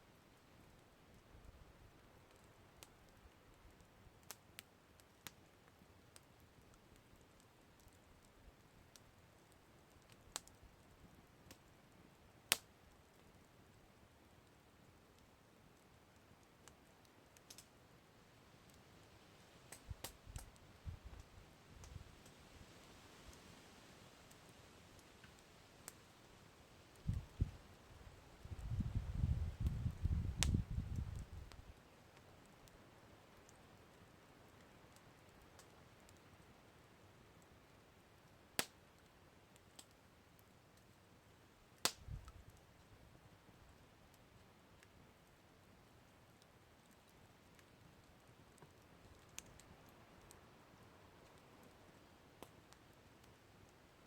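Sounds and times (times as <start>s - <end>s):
wood fire crackling: 0.1s - 54.0s
sharp fire pops: 19.7s - 22.0s, 28.5s - 31.6s, 41.8s - 42.4s.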